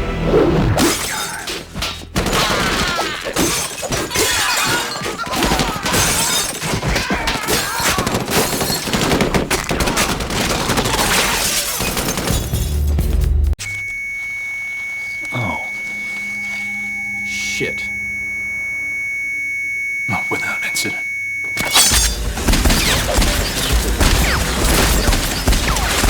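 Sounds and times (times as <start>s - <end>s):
glass shattering: 0.8s - 12.9s, 21.6s - 26.0s
rapid gunfire: 7.7s - 12.3s, 22.1s - 26.0s.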